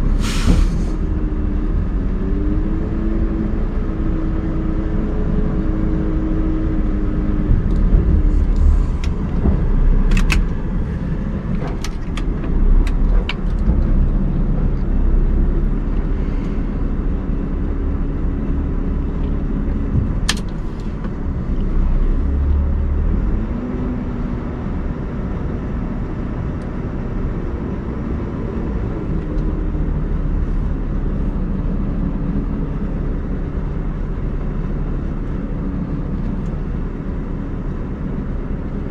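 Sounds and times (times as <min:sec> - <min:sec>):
diesel engine running under load: 0:00.0 - 0:38.9
sharp clicks or knocks: 0:07.5 - 0:14.9.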